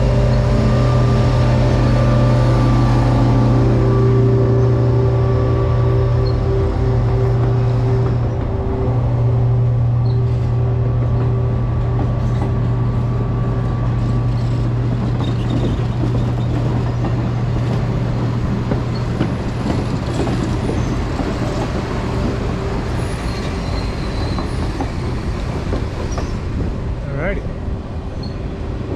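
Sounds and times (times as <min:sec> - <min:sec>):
higher steady tones: 0:00.0 - 0:14.2
train locomotive humming: 0:00.0 - 0:28.9.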